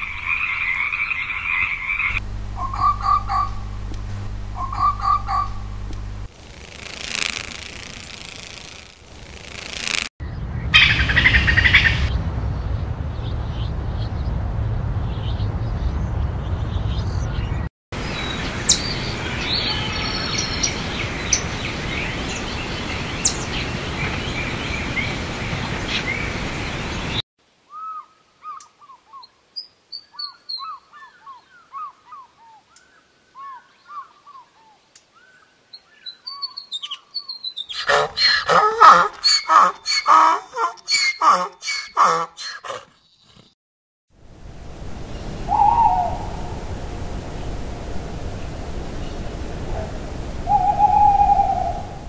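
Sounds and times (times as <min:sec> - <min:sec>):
squirrel chirping: 0:02.0 - 0:06.0
chipmunk chirping: 0:02.1 - 0:03.7, 0:04.6 - 0:05.7
steady background rumble: 0:02.1 - 0:06.3.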